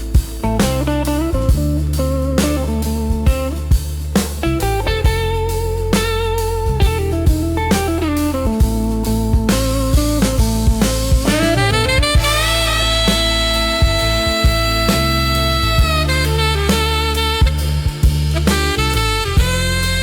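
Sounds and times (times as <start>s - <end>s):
bass: 0.0s - 20.0s
drum kit beat: 0.0s - 20.0s.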